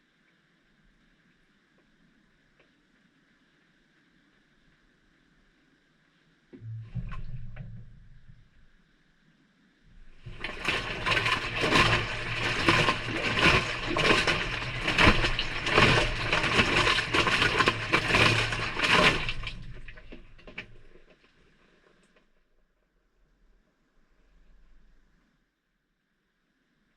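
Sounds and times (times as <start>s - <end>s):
washing machine motor hum: 6.6s - 8.7s, 9.9s - 21.1s
wet laundry tumbling in drum: 9.9s - 21.3s.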